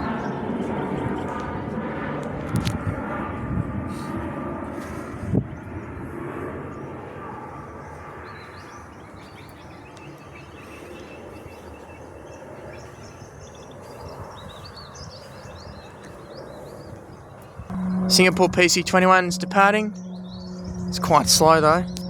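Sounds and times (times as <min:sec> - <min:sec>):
distant aircraft engine: 0:00.0 - 0:22.0
small birds chirping: 0:06.7 - 0:22.0.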